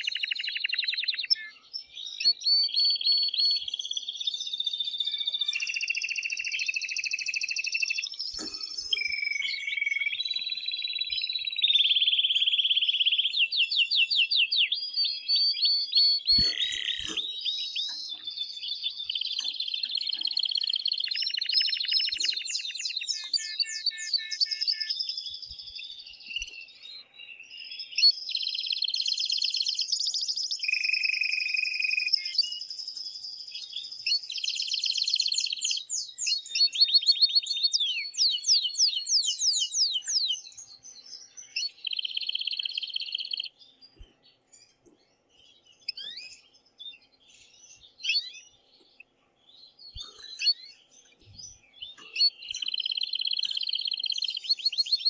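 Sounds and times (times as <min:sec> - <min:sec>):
canary singing rolling trills: 0:00.0 - 0:55.0
canary short chirps: 0:16.0 - 0:24.7, 0:41.5 - 0:43.5, 0:51.9 - 0:55.0.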